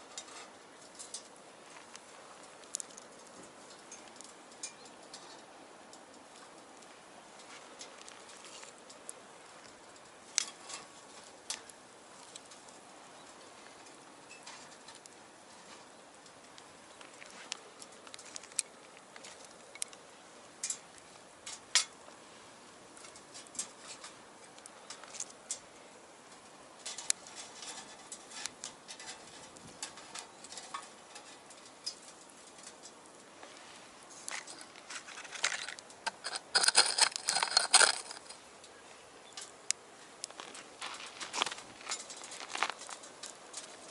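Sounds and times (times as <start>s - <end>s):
faint steady hiss: 0.0s - 43.9s
wood fire crackling: 0.0s - 43.9s
fire pops: 0.1s - 22.1s, 26.3s - 38.4s.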